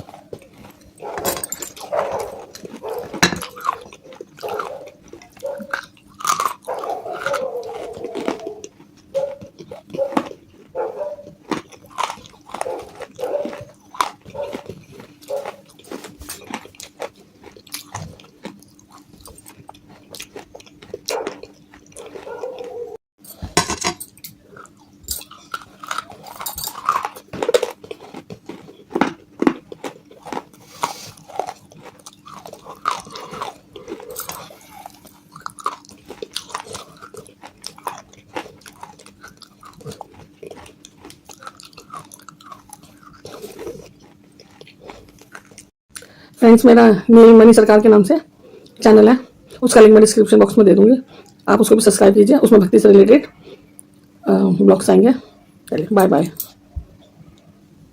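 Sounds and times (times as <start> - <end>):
crunching and chewing clay: 0.0 - 23.0, 24.2 - 46.4, 50.8 - 51.6.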